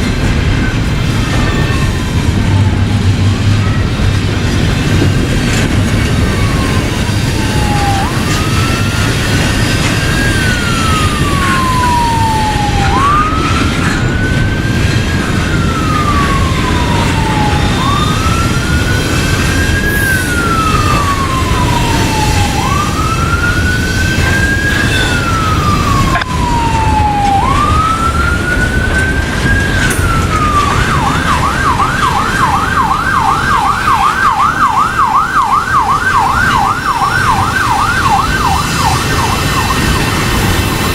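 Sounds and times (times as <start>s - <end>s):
steady low rumble: 0.0s - 8.7s
emergency vehicle siren wailing: 0.0s - 40.9s.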